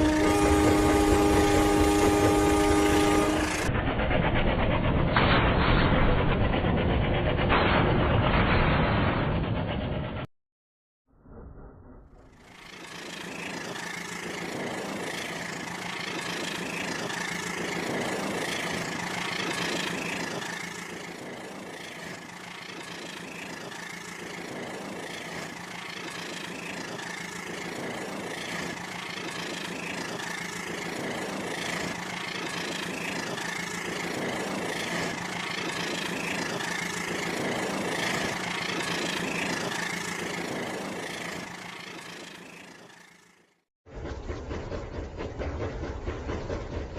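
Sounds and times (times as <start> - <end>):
toy train motor whine: 0.0 - 3.7, 12.3 - 43.5.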